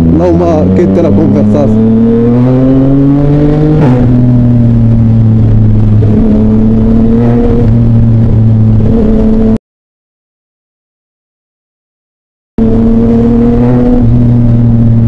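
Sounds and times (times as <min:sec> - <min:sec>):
motorcycle engine revving: 0:00.0 - 0:09.6, 0:12.6 - 0:15.0.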